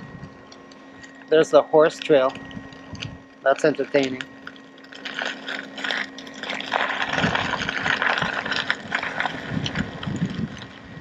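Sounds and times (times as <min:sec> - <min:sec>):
steady low hum: 0:00.0 - 0:11.0
tyre rolling through mud: 0:05.0 - 0:10.7.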